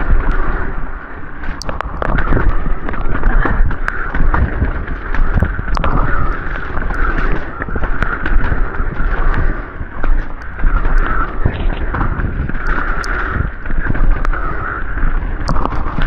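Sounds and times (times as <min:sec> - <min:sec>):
bike knocking and rattling: 0:00.0 - 0:16.0
bike tyres on dirt and rock: 0:00.0 - 0:16.0
wind buffeting microphone: 0:00.0 - 0:16.0.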